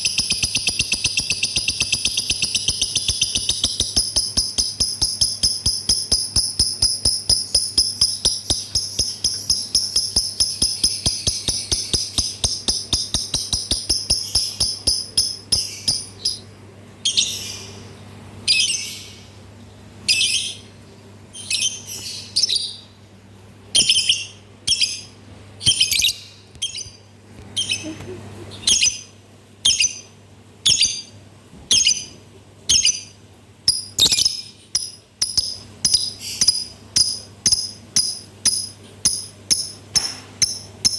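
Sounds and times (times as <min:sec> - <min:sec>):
lovebird chirping: 0:00.0 - 0:17.8, 0:23.8 - 0:40.9.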